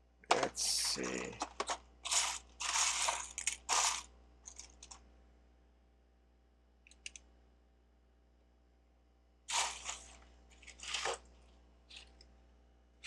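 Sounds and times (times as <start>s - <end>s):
plastic bricks clattering: 0.3s - 5.0s
small clicks: 6.8s - 7.3s.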